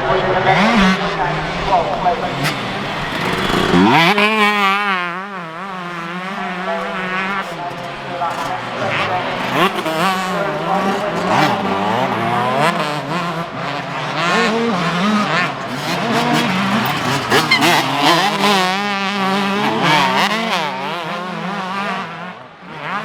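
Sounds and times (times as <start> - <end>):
motocross bikes revving: 0.0 - 23.0.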